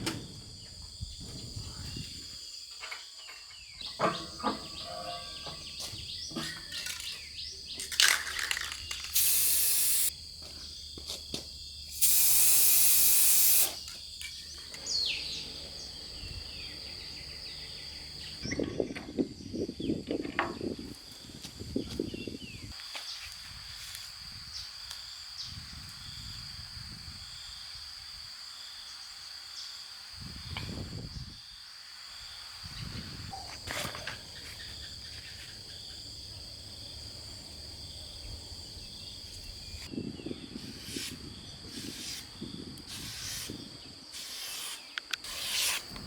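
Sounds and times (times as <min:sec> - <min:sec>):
high insect-like buzz: 0:04.8 - 0:18.4, 0:22.8 - 0:46.0
spraying hiss: 0:09.0 - 0:10.1, 0:11.9 - 0:13.9.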